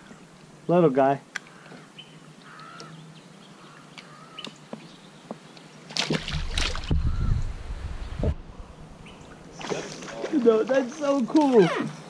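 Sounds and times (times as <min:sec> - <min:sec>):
water splashing against kayak: 0:05.9 - 0:07.5, 0:09.1 - 0:11.6.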